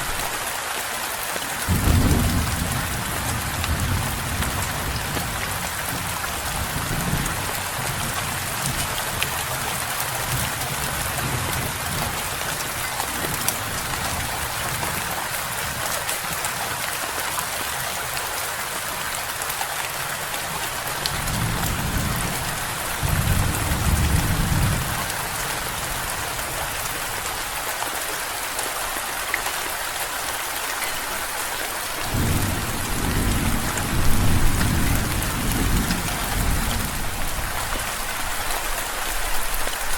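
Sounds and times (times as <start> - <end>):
steady rain: 0.0 - 39.9
rolling thunder: 1.7 - 8.4, 20.9 - 25.1, 32.1 - 37.3.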